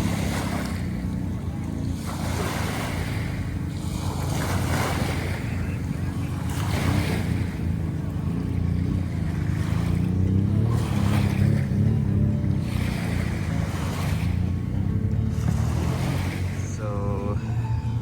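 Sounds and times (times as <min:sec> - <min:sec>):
steady low drone: 0:00.0 - 0:18.0
waves washing onto beach: 0:00.0 - 0:18.0
wind buffeting microphone: 0:00.0 - 0:18.0.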